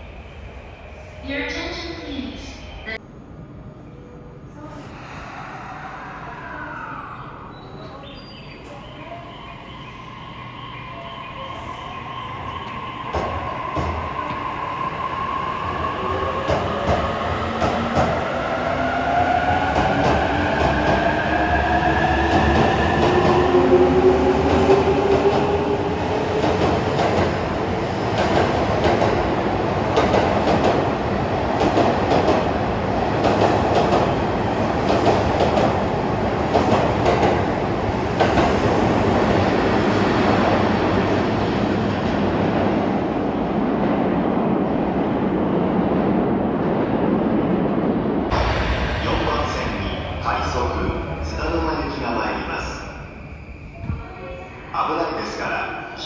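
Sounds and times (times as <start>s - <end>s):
rumble of passing train cars: 0.0s - 56.0s.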